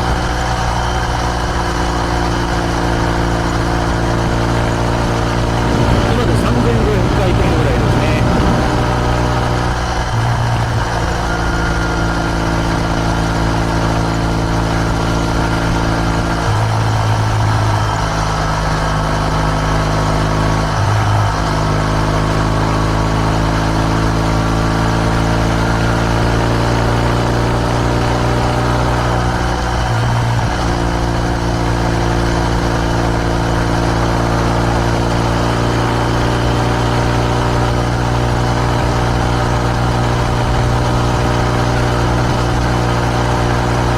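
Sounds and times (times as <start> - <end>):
motorcycle engine exhaust: 7.0 - 23.8.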